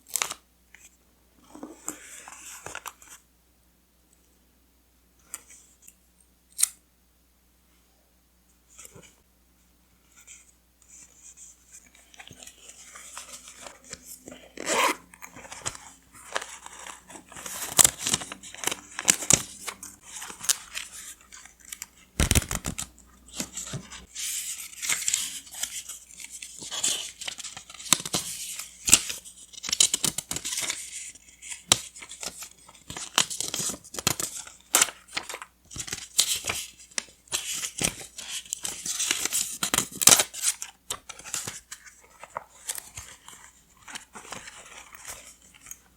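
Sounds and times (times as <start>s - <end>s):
paper tearing and crinkling: 14.3s - 24.0s.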